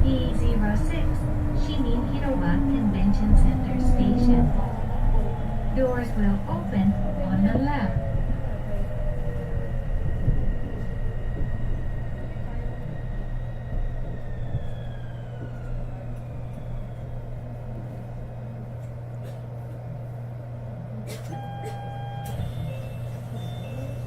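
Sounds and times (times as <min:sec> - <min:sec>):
train running rumble: 0:00.0 - 0:24.0
train motor whine: 0:21.4 - 0:24.0.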